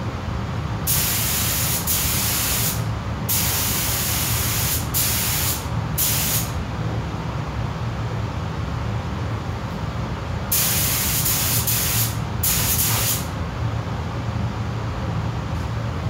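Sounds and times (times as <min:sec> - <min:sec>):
steady low hum: 0:00.0 - 0:16.0
compressed air gun hissing: 0:00.9 - 0:06.6, 0:10.5 - 0:13.3.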